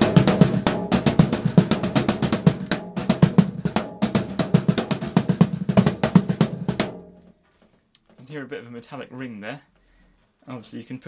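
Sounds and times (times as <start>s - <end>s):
hand drum strokes: 0.0s - 8.2s.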